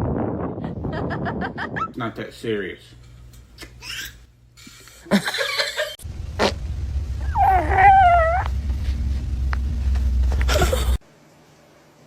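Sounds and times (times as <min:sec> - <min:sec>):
low steady hum: 0:02.1 - 0:12.0
cat meowing: 0:07.2 - 0:08.5.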